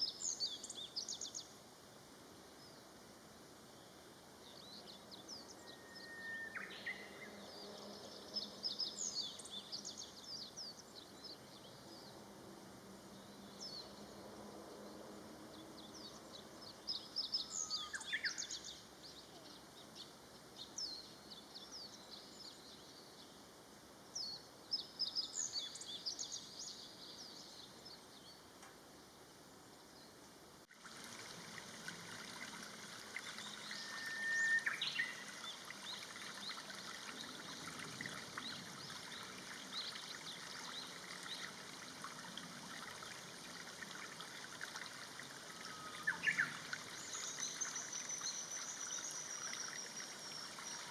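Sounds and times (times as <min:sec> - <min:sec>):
songbirds chirping: 0:00.0 - 0:30.7, 0:31.5 - 0:50.9
outdoor hiss: 0:08.5 - 0:50.9
running water rushing: 0:30.6 - 0:50.9.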